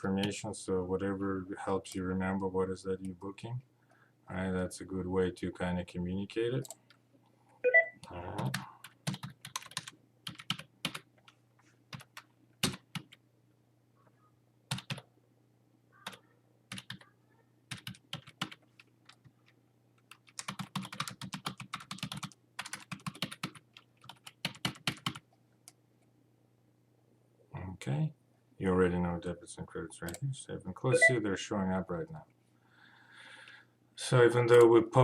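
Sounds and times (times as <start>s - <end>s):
faint steady hum: 0.0s - 35.0s
typing on computer keyboard: 8.5s - 11.1s, 11.9s - 13.2s, 14.7s - 15.0s, 16.0s - 17.1s, 17.7s - 25.2s.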